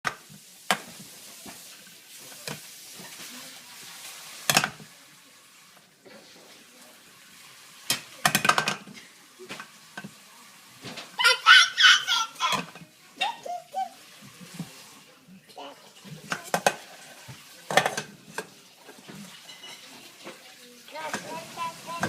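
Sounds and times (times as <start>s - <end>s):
dishes and utensils clinking: 4.4s - 4.9s, 7.9s - 10.2s, 12.4s - 13.4s, 15.9s - 20.4s.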